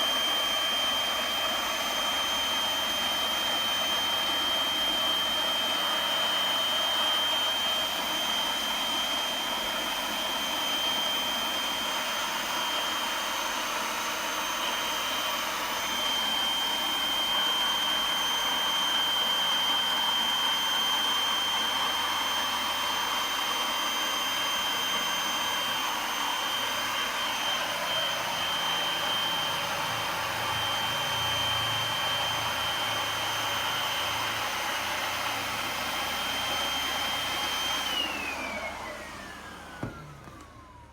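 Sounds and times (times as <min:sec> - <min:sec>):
cordless blower whining: 0:00.0 - 0:40.9.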